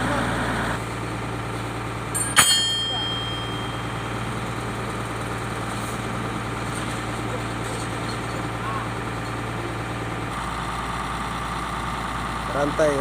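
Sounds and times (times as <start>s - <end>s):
diesel engine idling: 0.0s - 13.0s
metallic clang: 2.1s - 8.4s.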